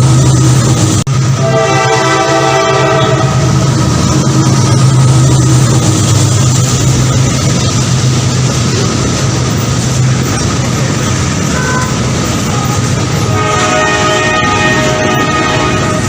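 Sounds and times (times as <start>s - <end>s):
train rumbling: 0.0s - 16.0s
train horn: 1.4s - 3.6s, 11.5s - 16.0s.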